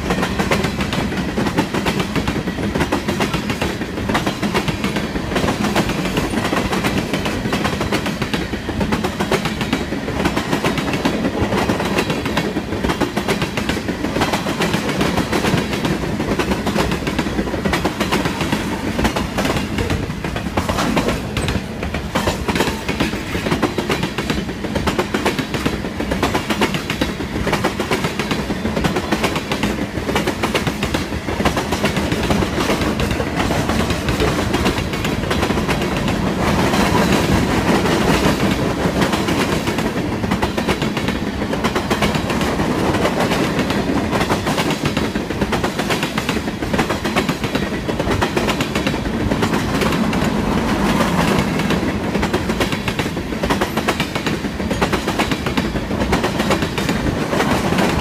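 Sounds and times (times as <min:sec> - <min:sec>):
steel wheels rumbling on rail: 0:00.0 - 0:58.0
wheels clacking over rail joints: 0:00.0 - 0:58.0.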